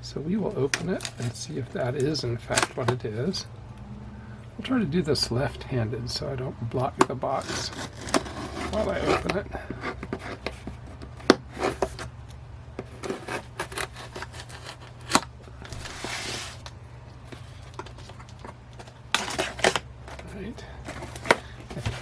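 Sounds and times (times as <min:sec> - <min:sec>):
rasping cardboard scrape: 0:07.3 - 0:12.1, 0:12.8 - 0:16.6.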